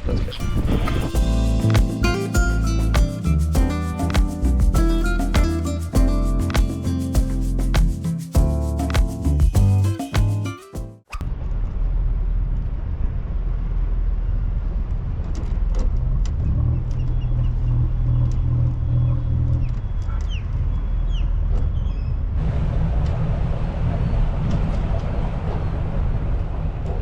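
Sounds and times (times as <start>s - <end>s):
wind hiss on microphone: 0.0s - 10.5s
music: 1.1s - 11.0s.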